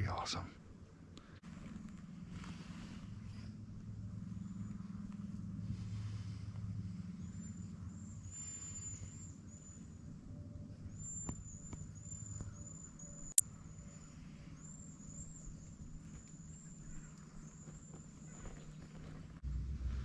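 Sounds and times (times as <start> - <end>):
low steady rumble: 0.6 - 8.4, 19.4 - 20.0.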